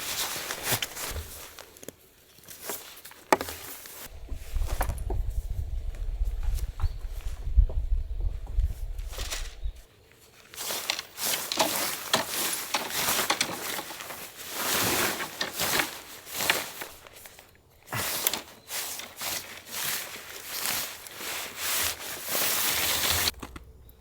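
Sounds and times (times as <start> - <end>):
rustling and rubbing: 0.0 - 23.6
small clicks and knocks: 10.7 - 14.1.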